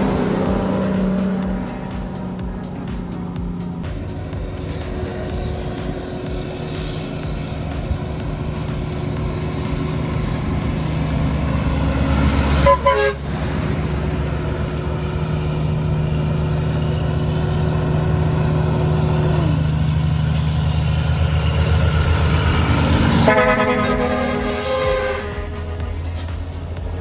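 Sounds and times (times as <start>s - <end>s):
horn toots: 0.0s - 15.8s, 18.2s - 27.0s
truck diesel engine braking: 0.0s - 27.0s.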